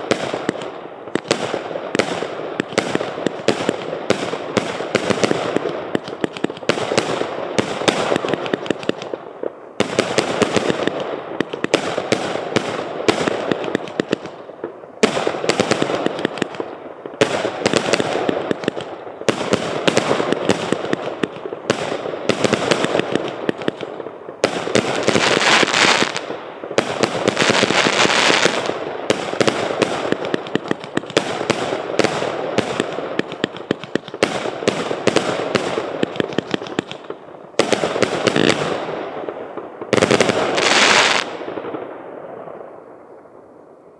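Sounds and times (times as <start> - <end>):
fireworks firing rapid volleys: 0.0 - 42.7
fireworks hiss and crackle: 0.0 - 42.8.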